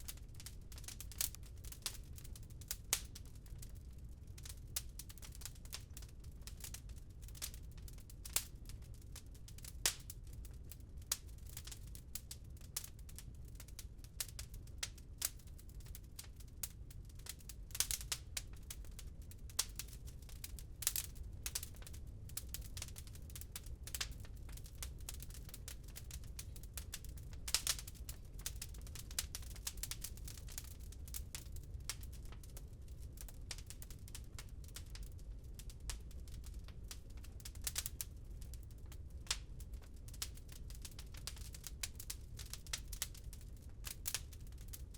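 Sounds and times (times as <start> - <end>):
wood fire crackling in fireplace: 0.0 - 44.9.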